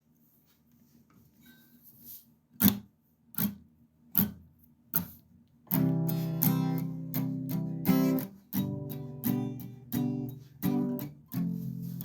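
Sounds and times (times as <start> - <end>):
small rustles: 0.0 - 2.5, 11.4 - 12.0
acoustic guitar strum: 5.7 - 12.0.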